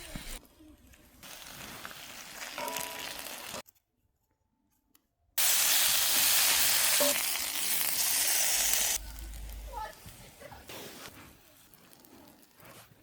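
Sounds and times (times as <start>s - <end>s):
food sizzling in a pan: 1.2s - 3.6s, 5.4s - 12.7s.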